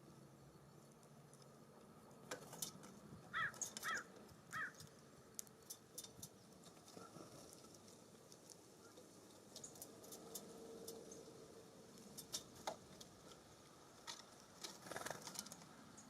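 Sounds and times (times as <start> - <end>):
bird calling: 3.3 - 4.8.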